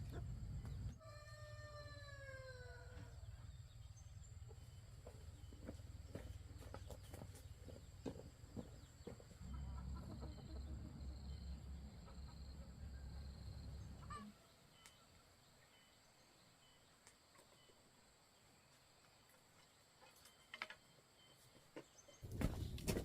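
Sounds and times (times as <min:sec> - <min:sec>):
chickens clucking: 0:00.0 - 0:01.0, 0:04.4 - 0:12.8.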